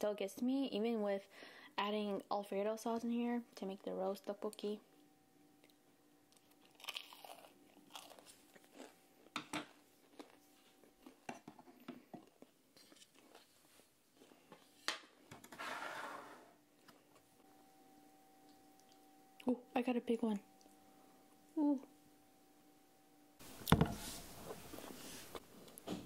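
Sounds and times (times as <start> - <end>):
person chewing food: 5.6 - 14.6.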